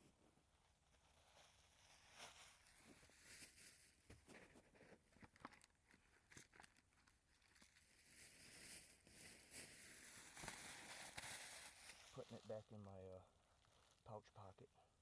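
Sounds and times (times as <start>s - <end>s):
litter crinkling and rustling: 1.1s - 14.1s.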